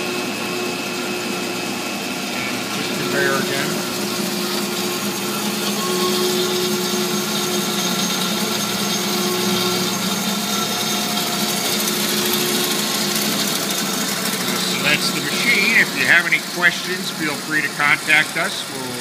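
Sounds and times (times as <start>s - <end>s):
band saw humming with hiss: 0.0s - 19.0s.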